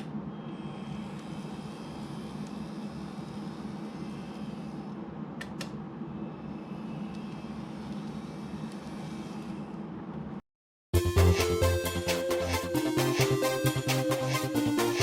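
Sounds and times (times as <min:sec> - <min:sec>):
mechanical hum: 0:00.0 - 0:10.4.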